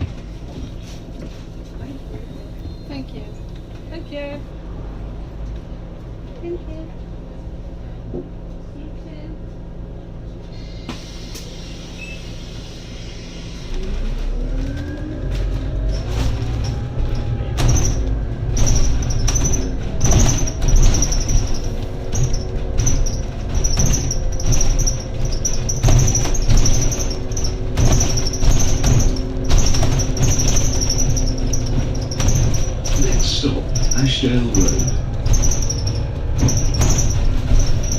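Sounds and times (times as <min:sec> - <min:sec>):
bus diesel engine accelerating: 0:00.0 - 0:37.9
cabin rattles and knocks: 0:16.0 - 0:37.9.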